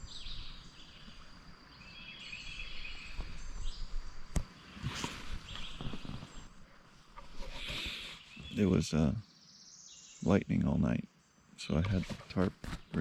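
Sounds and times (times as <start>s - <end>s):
birds singing: 0.0s - 13.0s
brief rustling: 4.3s - 8.6s.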